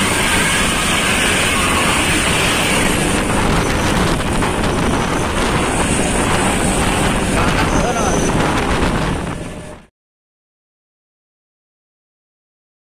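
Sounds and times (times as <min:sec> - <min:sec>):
road and wind noise: 0:00.0 - 0:09.9
vehicle running: 0:00.0 - 0:09.9.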